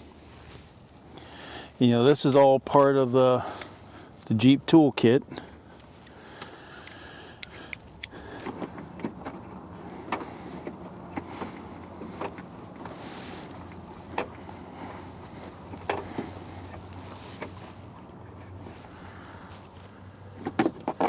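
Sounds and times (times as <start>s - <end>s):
tools clicking and knocking: 2.1s - 2.4s, 6.8s - 8.6s.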